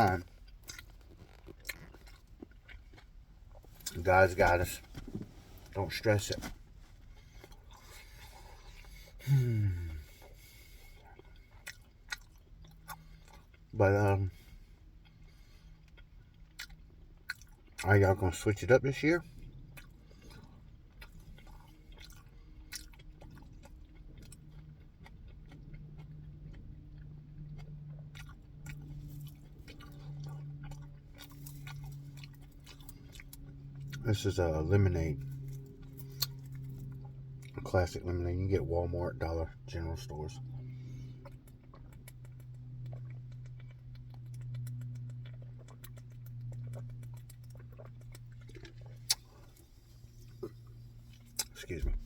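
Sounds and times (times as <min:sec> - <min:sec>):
person chewing food: 0:00.0 - 0:17.8, 0:19.2 - 0:37.9, 0:39.2 - 0:52.0
low steady hum: 0:00.0 - 0:52.0
eating and drinking smacks: 0:50.2 - 0:51.8.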